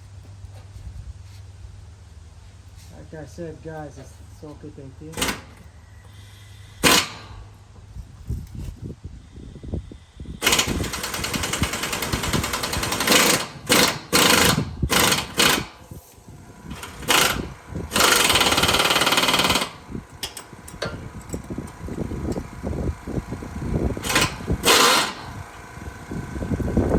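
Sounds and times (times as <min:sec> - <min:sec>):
impact wrench hammering: 0:06.8 - 0:07.4, 0:10.4 - 0:15.8, 0:16.7 - 0:22.4, 0:24.0 - 0:25.7.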